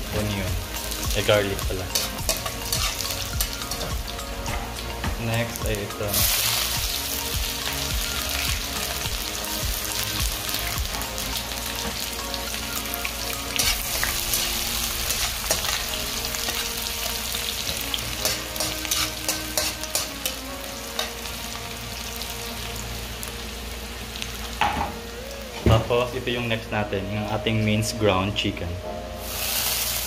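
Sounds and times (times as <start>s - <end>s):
food sizzling in a frying pan: 0.0s - 26.7s, 29.1s - 30.0s
metal spatula scraping pan: 13.6s - 14.2s, 17.4s - 20.4s.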